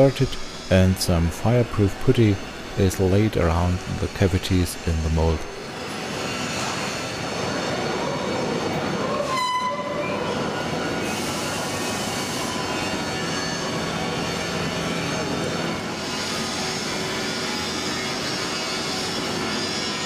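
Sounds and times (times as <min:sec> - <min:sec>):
machinery and ventilation noise: 0:00.0 - 0:20.0.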